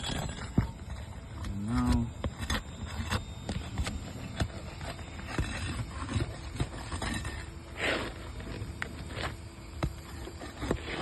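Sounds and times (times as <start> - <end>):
scraping rustle: 0.0 - 11.0.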